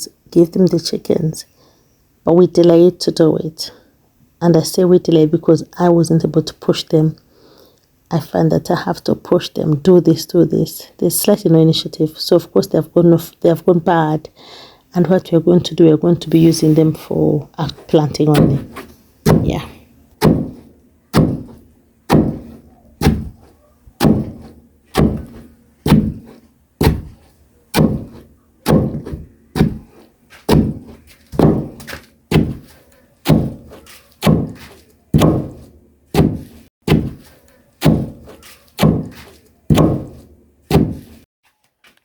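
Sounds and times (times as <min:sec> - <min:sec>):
heavy pounding thuds: 0:18.1 - 0:23.4, 0:24.0 - 0:29.9, 0:30.5 - 0:32.7, 0:33.3 - 0:37.2, 0:37.8 - 0:41.1.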